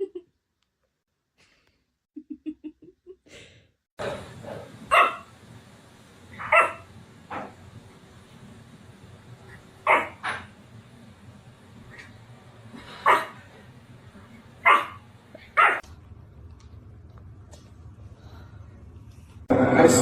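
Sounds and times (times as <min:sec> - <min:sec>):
dog barking: 0:04.9 - 0:05.3, 0:06.4 - 0:07.5, 0:09.8 - 0:10.5, 0:13.0 - 0:13.4, 0:14.6 - 0:15.8.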